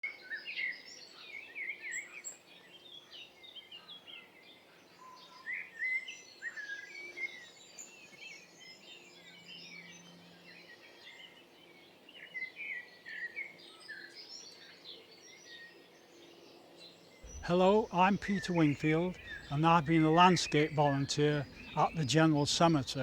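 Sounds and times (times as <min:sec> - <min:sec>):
songbirds chirping and trilling: 0:00.3 - 0:23.0
faint steady hum: 0:17.2 - 0:23.0.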